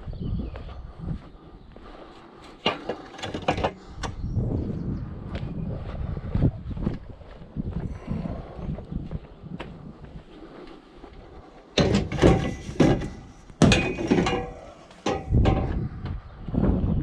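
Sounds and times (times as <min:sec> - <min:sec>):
scrap metal clanking and banging: 0:02.6 - 0:03.9, 0:11.7 - 0:15.9.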